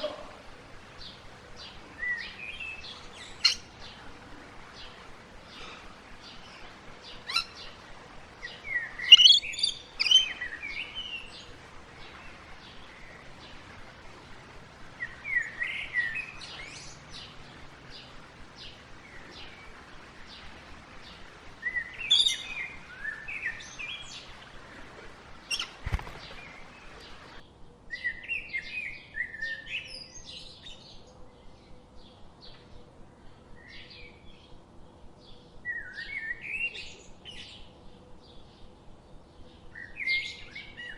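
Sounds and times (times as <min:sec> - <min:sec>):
small birds chirping and singing: 0:00.0 - 0:32.6.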